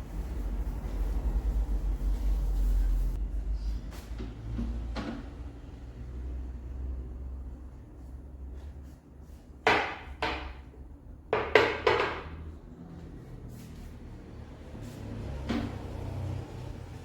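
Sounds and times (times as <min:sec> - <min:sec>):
sharp knocks of household items: 0:09.6 - 0:10.7, 0:11.4 - 0:12.4.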